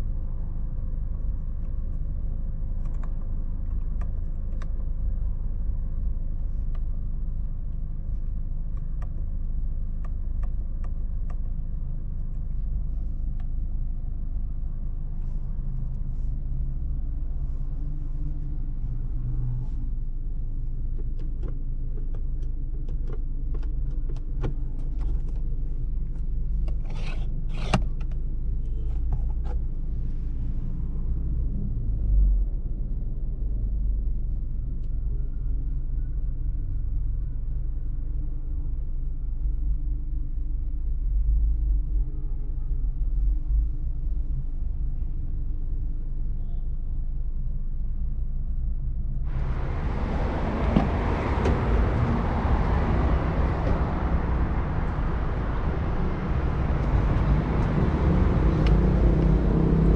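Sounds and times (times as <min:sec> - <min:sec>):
car engine idling: 0:49.3 - 0:59.9.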